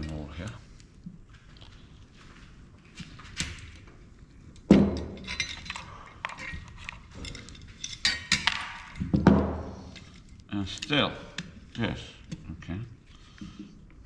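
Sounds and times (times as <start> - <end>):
metal parts clinking on hard surface: 5.0 - 9.1.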